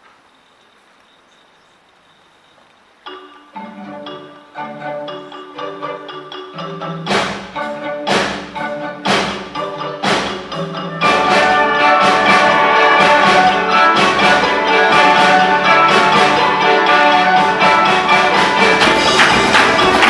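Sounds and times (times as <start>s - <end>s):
instrumental ensemble music: 3.0s - 20.0s.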